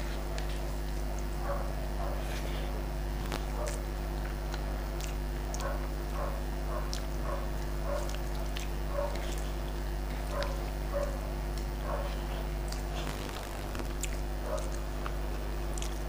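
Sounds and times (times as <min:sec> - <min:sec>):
low electrical hum: 0:00.0 - 0:16.0
person chewing: 0:00.0 - 0:16.0
wet lip clicks: 0:03.2 - 0:05.9, 0:06.8 - 0:10.6, 0:12.6 - 0:16.0.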